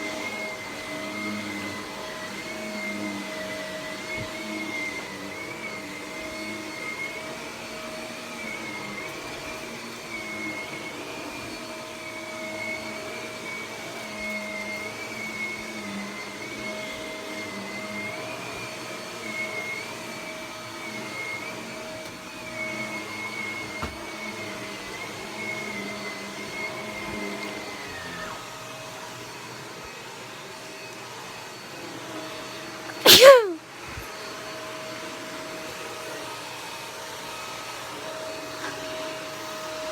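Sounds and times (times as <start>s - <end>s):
vacuum cleaner running: 0.0s - 30.7s.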